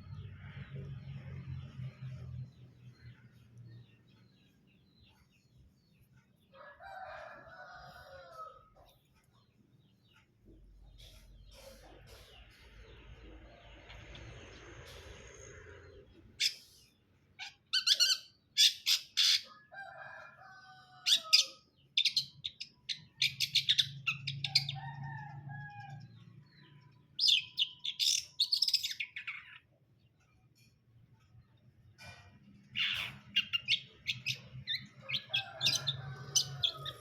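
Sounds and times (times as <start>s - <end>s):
bird singing scratchy chirps: 21.2s - 24.7s, 26.7s - 30.7s, 32.7s - 37.0s.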